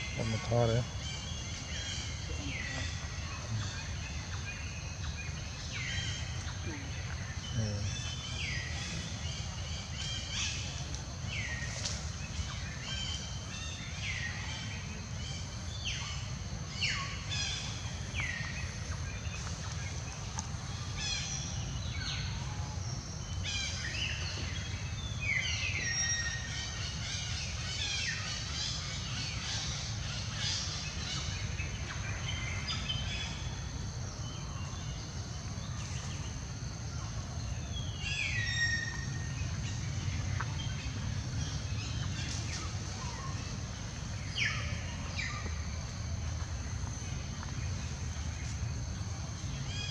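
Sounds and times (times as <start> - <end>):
steady low rumble: 30.8 - 49.7.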